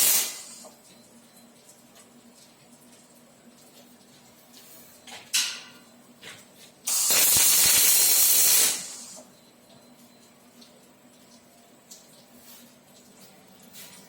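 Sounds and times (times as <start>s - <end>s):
welding burst: 0.0s - 0.6s, 6.9s - 9.2s
arc welding hissing and crackling: 0.0s - 0.7s, 6.8s - 9.3s.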